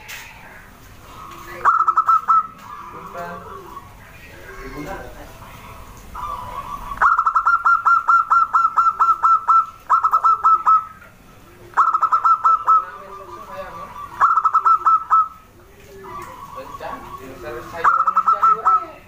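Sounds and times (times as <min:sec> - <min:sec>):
birds with sharp falling notes: 0:00.0 - 0:19.0
low cooing: 0:00.6 - 0:19.0.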